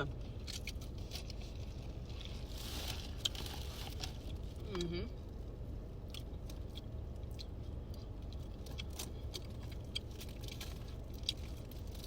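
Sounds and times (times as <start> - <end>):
steady low hum: 0.0 - 12.0
chewing clicks and smacks: 6.0 - 12.0.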